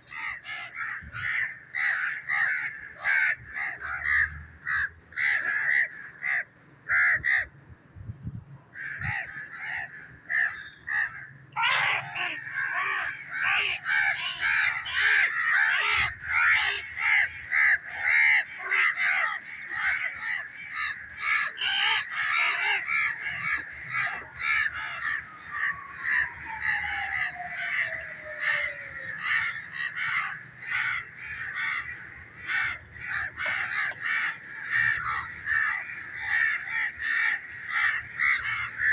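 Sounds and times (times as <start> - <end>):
parrots calling harshly: 8.8 - 25.1.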